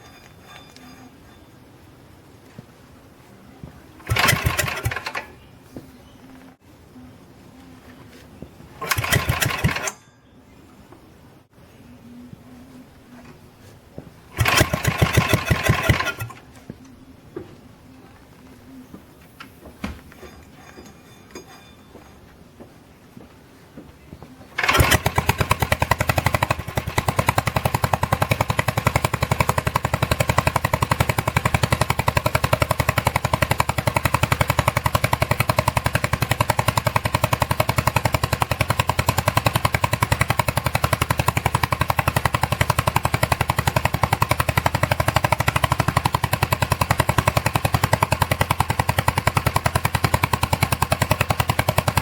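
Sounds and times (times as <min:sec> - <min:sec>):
small engine running with exhaust pops: 0:04.0 - 0:05.5, 0:08.8 - 0:10.0, 0:14.3 - 0:16.8, 0:24.6 - 0:52.0.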